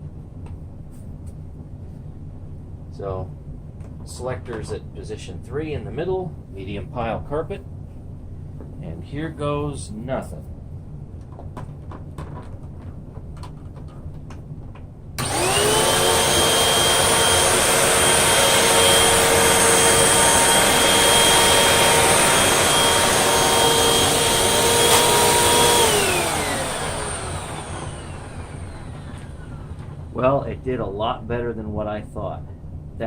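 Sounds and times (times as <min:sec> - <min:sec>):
vacuum cleaner motor whine: 0:15.2 - 0:30.4.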